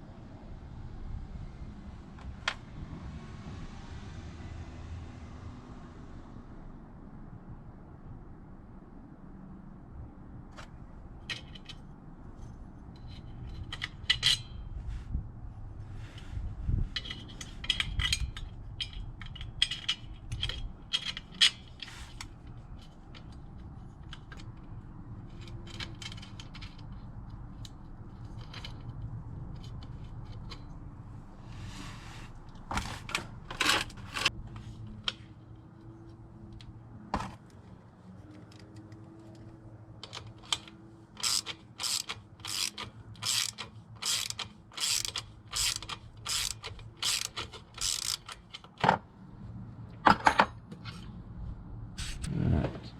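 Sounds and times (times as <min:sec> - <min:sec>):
metal parts and tools clinking: 0:11.2 - 0:14.8, 0:17.0 - 0:30.9, 0:40.0 - 0:49.0.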